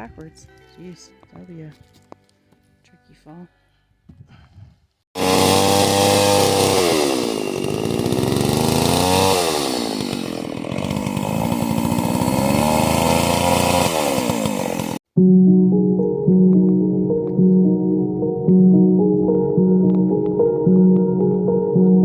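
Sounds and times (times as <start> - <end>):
chainsaw running: 5.2 - 15.0.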